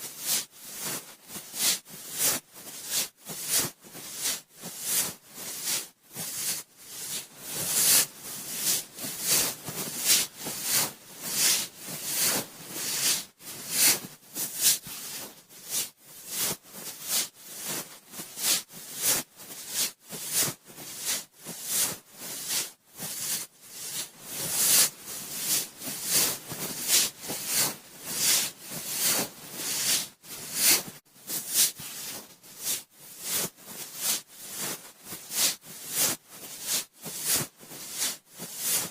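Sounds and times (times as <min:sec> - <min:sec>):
cotton swab rubbing inside ear: 0:01.5 - 0:17.7, 0:19.7 - 0:34.6.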